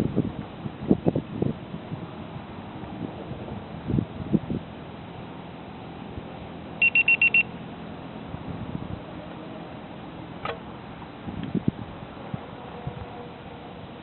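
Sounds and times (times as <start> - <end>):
wind noise: 0.0 - 5.0, 8.2 - 9.2, 11.1 - 14.0
high-pitched electronic beeps: 6.8 - 7.5.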